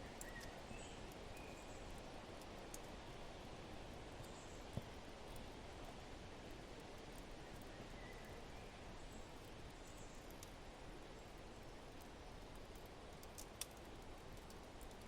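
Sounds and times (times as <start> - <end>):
wood fire crackling: 1.9 - 3.0, 11.4 - 15.0.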